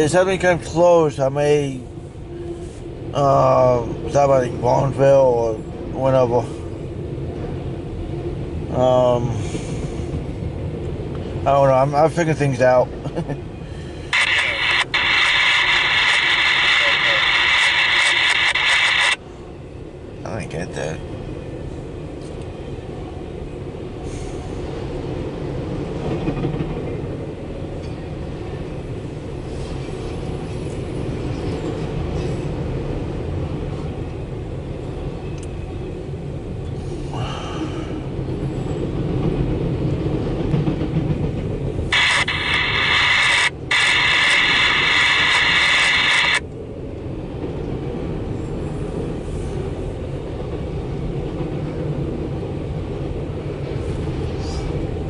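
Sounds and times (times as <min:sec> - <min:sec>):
freight train wheels rumbling: 0:00.0 - 0:55.0
loud high-pitched sound: 0:42.0 - 0:46.4.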